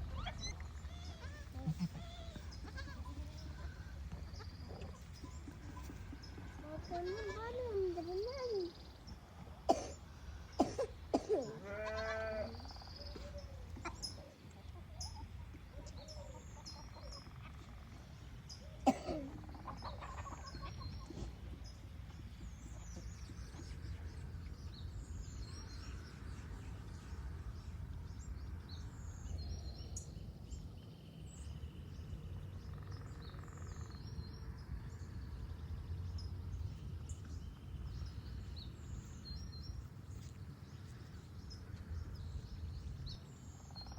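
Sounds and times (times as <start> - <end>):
farm animal calling: 0.0 - 6.0, 11.4 - 14.2, 19.4 - 21.3.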